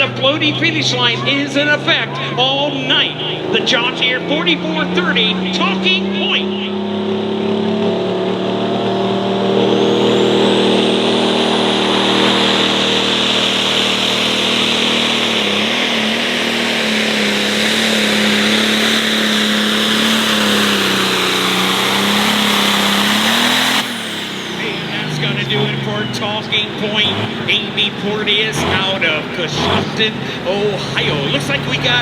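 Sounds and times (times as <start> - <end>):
tractor diesel engine running hard: 0.0 - 32.0.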